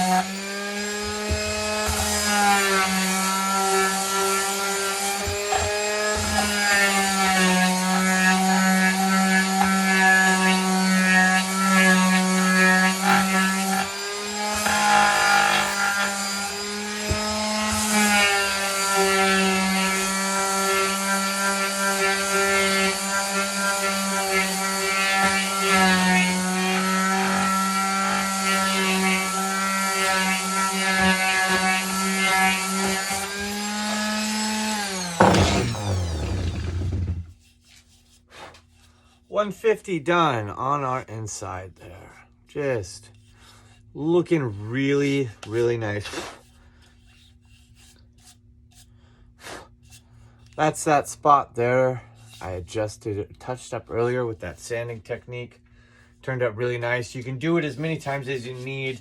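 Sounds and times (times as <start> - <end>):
electric sander on wood: 0.0 - 37.3, 56.6 - 59.0.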